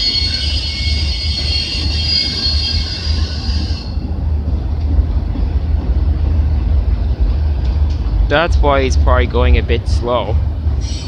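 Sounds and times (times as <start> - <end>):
high wheel squeal: 0.0 - 4.0, 10.8 - 11.0
freight cars rumbling past: 2.7 - 11.0.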